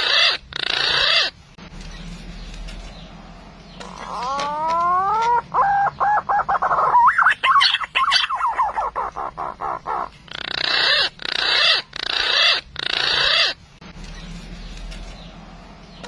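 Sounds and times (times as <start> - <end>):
harsh raspy bird calls: 0.0 - 2.1, 3.7 - 13.7
pigeon wavering notes: 3.8 - 13.6.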